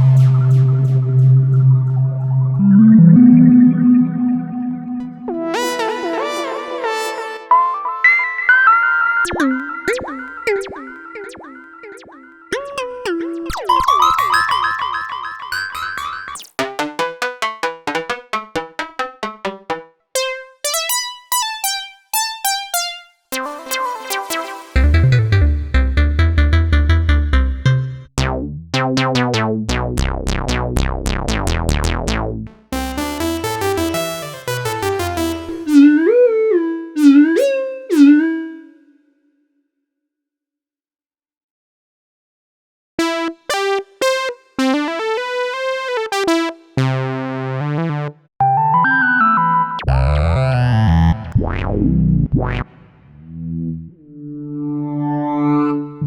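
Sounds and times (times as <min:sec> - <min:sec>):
fast short synthesizer notes: 0:00.0 - 0:05.7, 0:23.3 - 0:28.4
held gliding synthesizer tones: 0:00.0 - 0:05.8
synthesizer pitch sweeps: 0:00.0 - 0:12.5, 0:23.3 - 0:28.1, 0:30.0 - 0:38.8, 0:47.7 - 0:56.0
synthesizer notes and chords: 0:00.0 - 0:38.9, 0:43.0 - 0:56.0.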